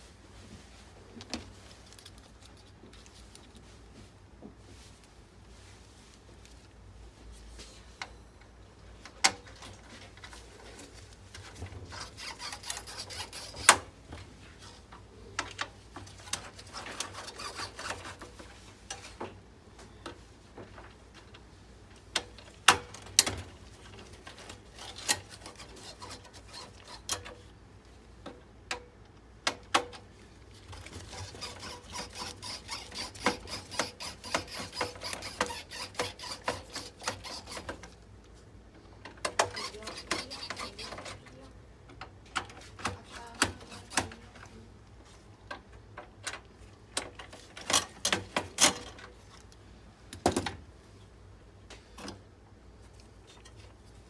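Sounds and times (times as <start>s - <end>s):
scratchy rubbing: 11.5s - 13.8s, 16.2s - 18.4s, 24.4s - 27.1s, 30.7s - 37.7s, 39.5s - 41.2s, 43.0s - 44.3s
clicks of plastic and metal parts: 45.5s - 50.6s.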